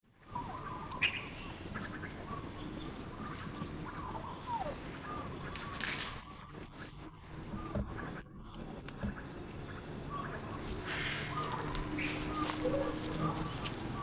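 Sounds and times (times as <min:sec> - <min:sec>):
steady background hiss: 0:00.1 - 0:14.0
rustling: 0:10.4 - 0:14.0.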